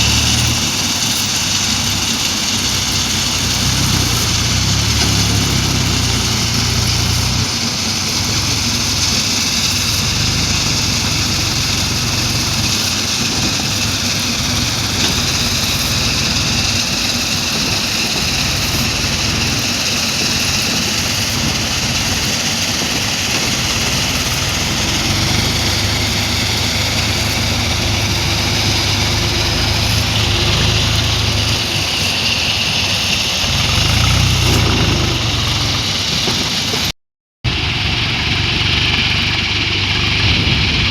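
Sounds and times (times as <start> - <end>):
tractor engine running: 0.0 - 36.9, 37.5 - 40.9.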